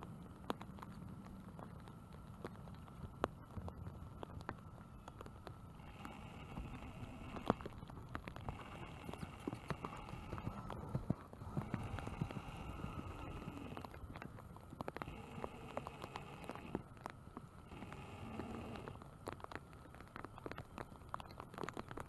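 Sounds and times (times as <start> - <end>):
rain drops tapping hard surface: 0.0 - 22.0.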